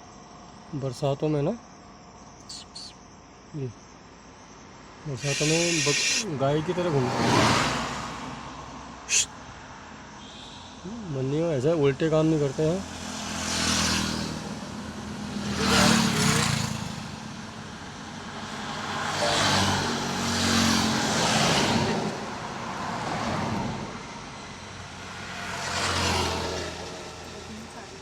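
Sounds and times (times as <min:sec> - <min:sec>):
motor vehicles passing: 0:05.2 - 0:08.4, 0:12.3 - 0:28.0.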